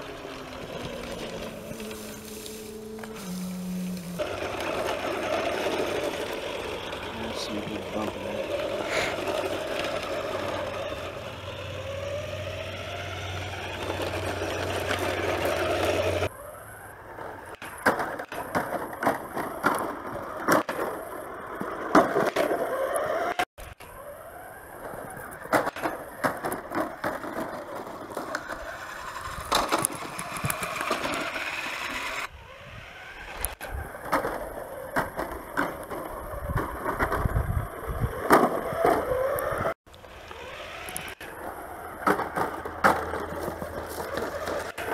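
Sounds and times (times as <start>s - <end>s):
toy truck electric motors whining: 0.0s - 44.9s
knocks and clatter over bumps: 17.6s - 23.4s, 25.0s - 31.5s, 33.5s - 39.7s, 41.9s - 44.9s.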